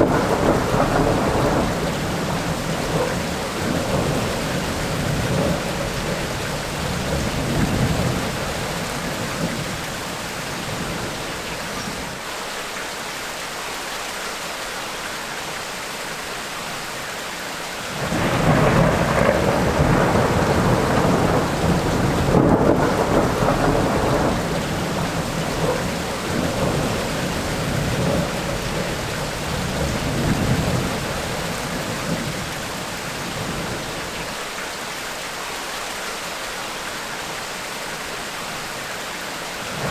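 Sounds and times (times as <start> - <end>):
rolling thunder: 0.0 - 12.2, 17.9 - 34.4, 39.6 - 39.9
steady rain: 0.0 - 39.9.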